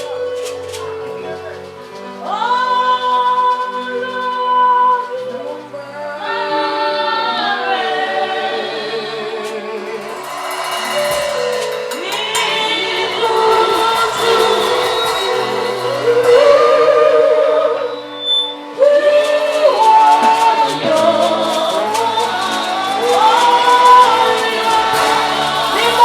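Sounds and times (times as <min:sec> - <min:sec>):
group singing gospel: 0:00.0 - 0:26.0
sustained accompaniment: 0:00.0 - 0:26.0.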